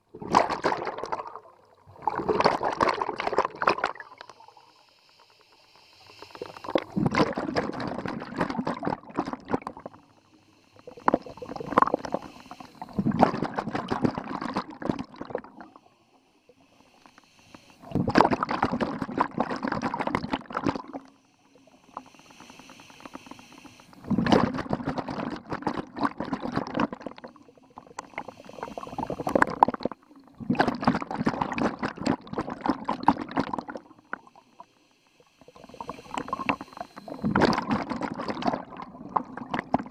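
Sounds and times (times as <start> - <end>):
diver regulator bubbling exhalations: 0.0 - 4.5, 6.0 - 10.1, 10.7 - 15.9, 17.6 - 21.1, 21.9 - 34.7, 35.4 - 39.9.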